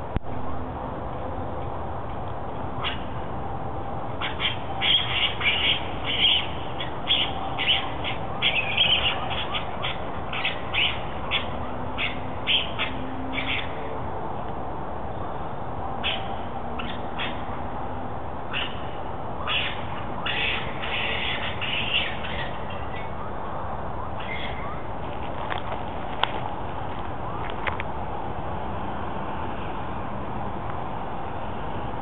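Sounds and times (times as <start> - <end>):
high-pitched animal calls: 4.2 - 13.8, 16.0 - 17.4, 18.5 - 23.2, 24.2 - 24.8.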